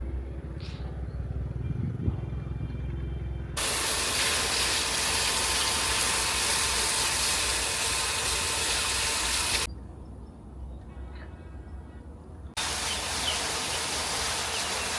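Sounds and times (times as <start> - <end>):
low steady rumble: 0.0 - 3.7
loud steady hiss: 3.6 - 9.7, 12.6 - 14.9.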